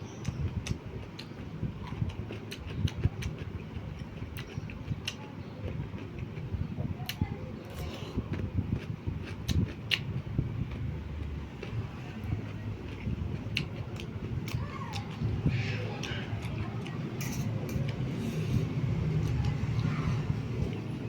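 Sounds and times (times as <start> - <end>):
low continuous rumble: 0.0 - 21.0
chewing noodles and rice: 0.1 - 21.0.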